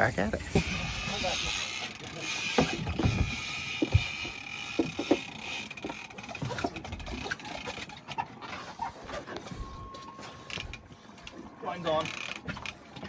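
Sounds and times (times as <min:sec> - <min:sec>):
fishing gear knocking and clicking: 0:02.5 - 0:07.4.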